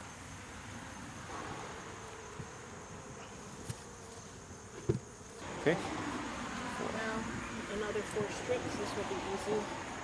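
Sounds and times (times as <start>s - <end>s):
honey bees buzzing: 0.0s - 10.0s.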